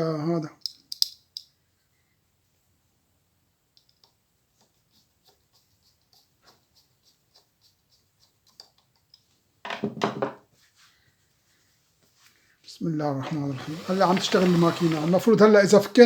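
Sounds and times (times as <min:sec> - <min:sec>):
small metallic clicks and taps: 0:00.6 - 0:01.5, 0:03.7 - 0:05.4, 0:08.2 - 0:09.4.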